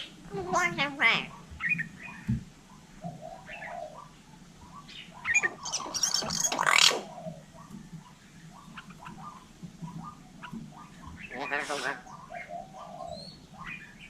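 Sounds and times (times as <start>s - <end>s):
myna squawking and whistling: 5.2s - 7.2s.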